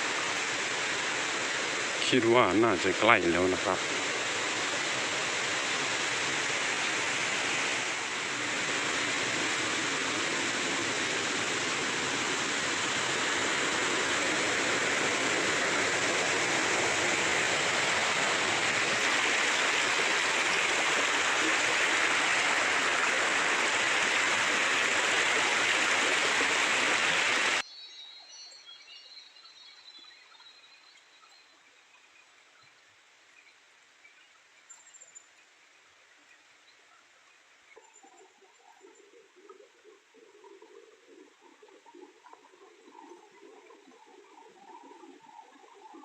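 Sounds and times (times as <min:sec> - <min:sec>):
creek water rushing: 0:00.0 - 0:27.6, 0:38.8 - 0:46.0.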